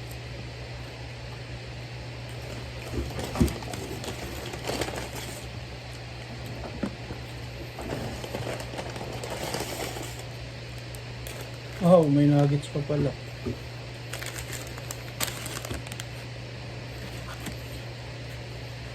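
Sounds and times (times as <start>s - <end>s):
steady low hum: 0.0s - 18.9s
food packaging rustling: 2.4s - 5.5s, 7.8s - 12.1s, 13.4s - 16.3s, 16.9s - 17.8s.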